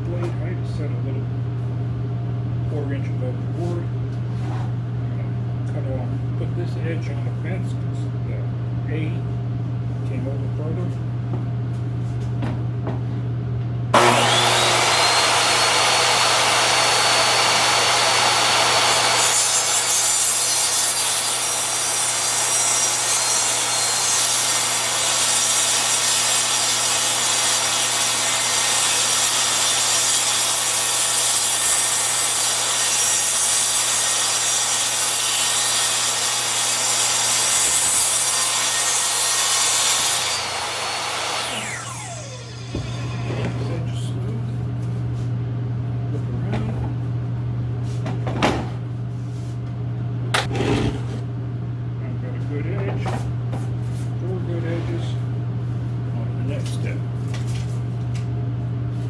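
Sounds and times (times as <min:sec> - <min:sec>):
saw blade cutting board: 0:14.0 - 0:43.8
table saw whining: 0:14.0 - 0:43.8.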